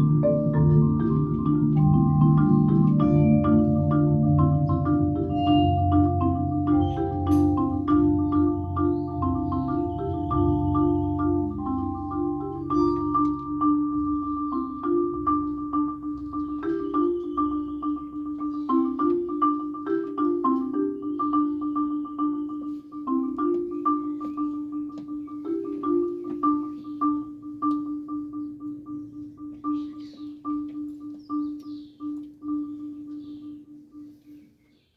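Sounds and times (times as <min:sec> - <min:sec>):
marimba-like struck notes: 0:00.0 - 0:33.4.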